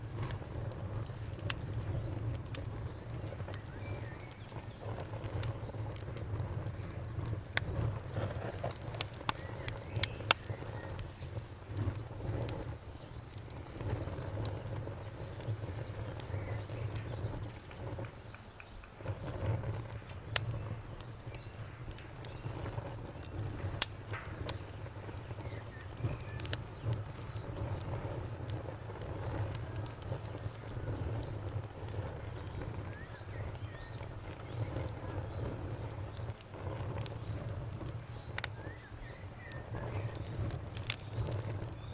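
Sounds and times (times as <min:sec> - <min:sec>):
campfire crackling: 0:00.0 - 0:41.9
sharp pops: 0:00.1 - 0:41.9
cricket chirping: 0:09.0 - 0:41.9.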